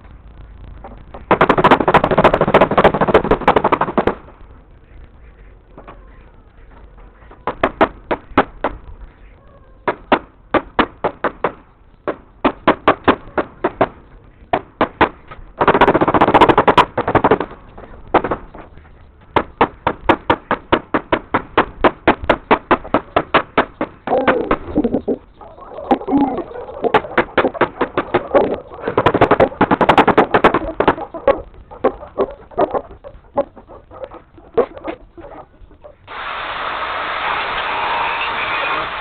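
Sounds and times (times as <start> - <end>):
rapid sharp knocks: 0.8 - 4.4, 7.2 - 8.9, 9.8 - 25.0, 25.9 - 34.4
dense rattling: 10.4 - 36.1.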